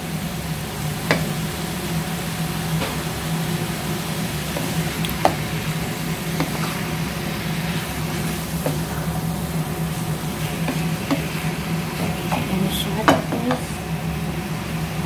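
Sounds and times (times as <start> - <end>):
food sizzling in a pot: 0.0 - 15.0
steady low hum: 0.0 - 15.0
spatula knocking against pot: 1.1 - 1.3, 4.6 - 5.5, 6.4 - 6.8, 10.6 - 11.4, 12.0 - 13.7.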